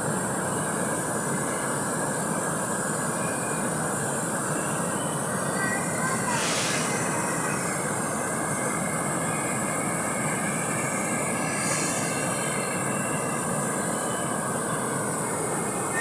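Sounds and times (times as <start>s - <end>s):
high hiss: 0.0s - 16.0s.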